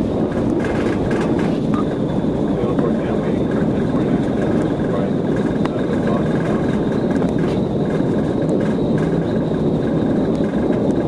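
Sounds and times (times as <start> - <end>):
road and engine noise: 0.0 - 11.0.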